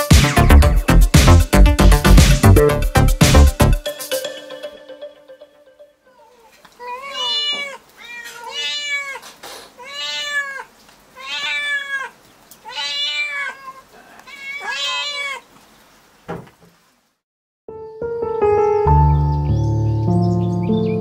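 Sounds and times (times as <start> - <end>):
cat meowing: 6.1 - 15.5.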